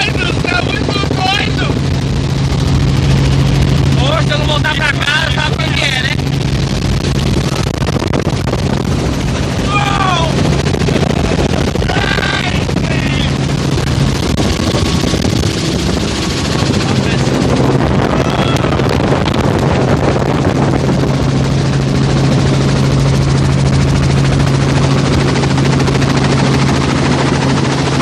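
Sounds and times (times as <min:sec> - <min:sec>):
helicopter drone: 0:00.0 - 0:28.0.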